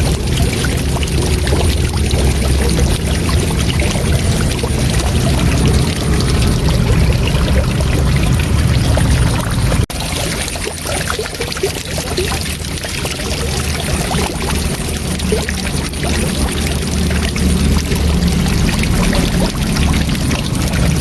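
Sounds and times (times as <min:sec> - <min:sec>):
waterfall rushing: 0:00.0 - 0:11.1.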